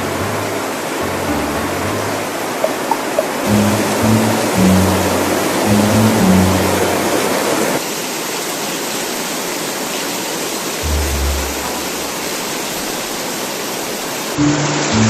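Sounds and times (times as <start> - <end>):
low background music: 0.0 - 7.2, 10.8 - 12.2
heavy rain downpour: 0.0 - 15.0.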